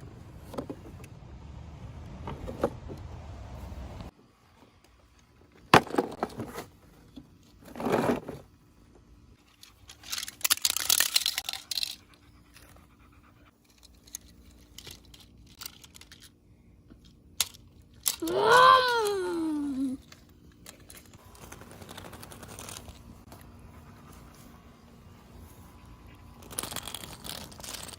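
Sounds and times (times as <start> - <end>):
scraping and crunching rustles: 5.9 - 8.6
child's drawn-out vocal sound: 18.2 - 20.0.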